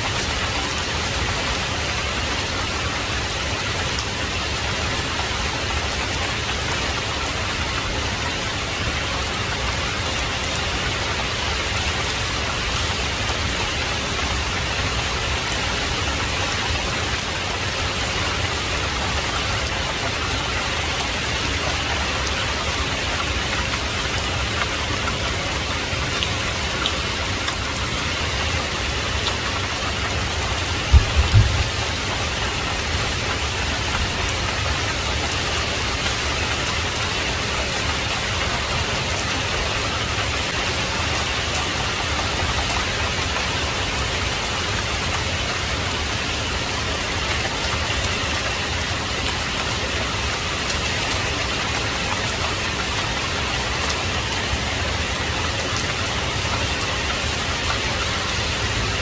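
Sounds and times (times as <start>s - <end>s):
heavy rain falling: 0.0s - 59.0s
low rumble or thump: 30.9s - 31.9s.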